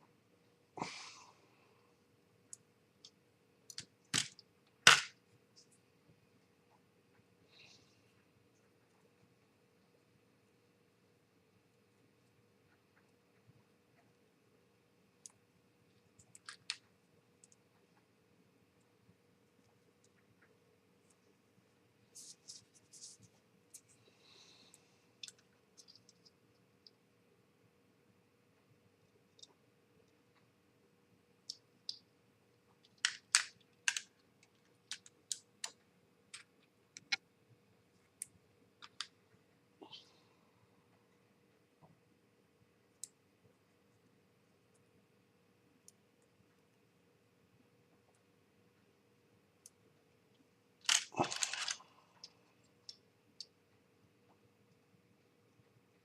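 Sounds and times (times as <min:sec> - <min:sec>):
faint steady hum: 0:00.0 - 0:56.0
small plastic parts clicking: 0:02.5 - 0:05.2, 0:16.2 - 0:17.6, 0:32.8 - 0:37.2, 0:38.2 - 0:39.2, 0:50.8 - 0:53.6
model kit parts rattling: 0:50.9 - 0:51.8.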